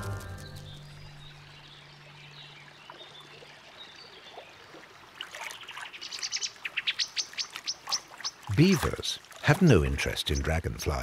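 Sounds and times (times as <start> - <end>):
songbird calling: 5.4 - 10.8.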